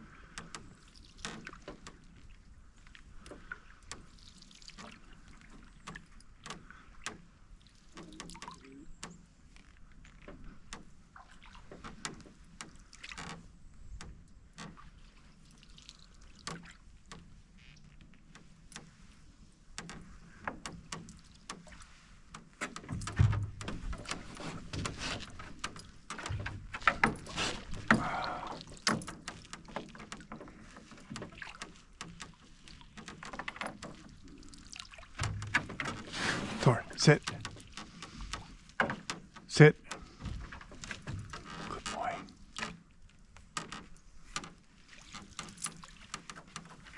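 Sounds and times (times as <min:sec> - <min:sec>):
paddle and hull knocks and creaks: 0:00.0 - 0:46.9
paddle in water: 0:00.0 - 0:46.9
heavy thump in hull: 0:22.8 - 0:29.4, 0:35.1 - 0:39.4.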